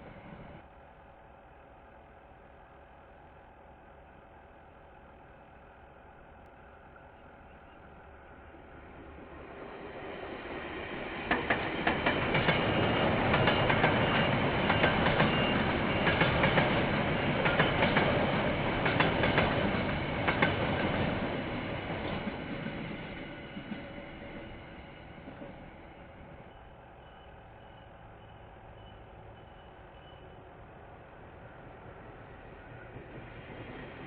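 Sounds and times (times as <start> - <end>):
train wheels clicking over rail joints: 11.1 - 27.8.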